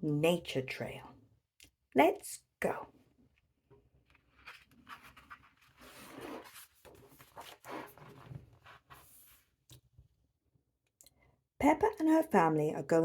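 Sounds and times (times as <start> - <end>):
paper pages rustling: 4.1 - 9.5.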